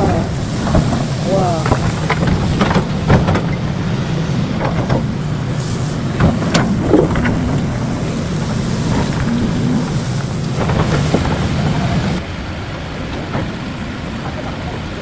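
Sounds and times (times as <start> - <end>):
short knocks and clatters: 0.0 - 12.2
engine running with low rumble: 0.0 - 15.0.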